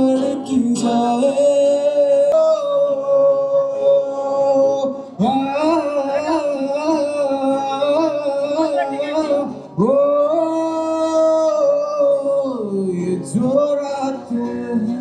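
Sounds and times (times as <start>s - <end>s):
slow love song: 0.0s - 15.0s.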